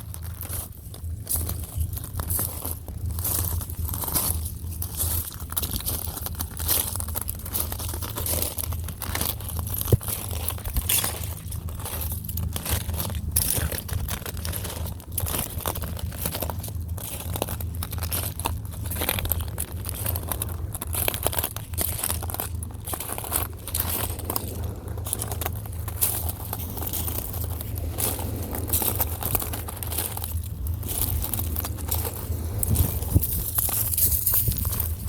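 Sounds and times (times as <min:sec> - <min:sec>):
footsteps crunching on shells: 0:00.0 - 0:35.0.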